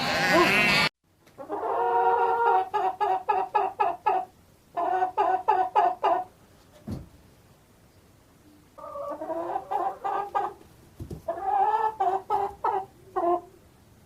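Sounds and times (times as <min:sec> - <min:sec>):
chicken clucking: 0:01.4 - 0:06.3, 0:08.5 - 0:10.6, 0:11.2 - 0:13.6.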